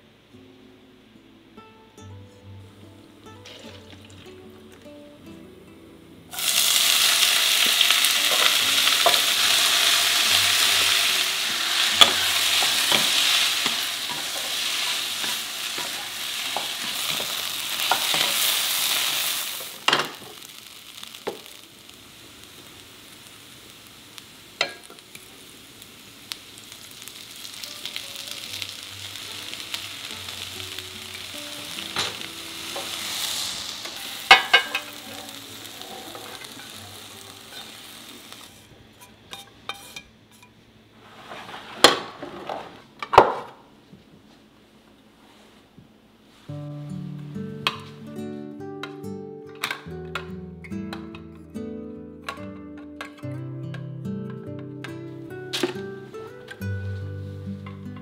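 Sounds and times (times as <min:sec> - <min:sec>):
vegetables sizzling in hot oil: 0:03.2 - 0:04.5, 0:06.3 - 0:40.0.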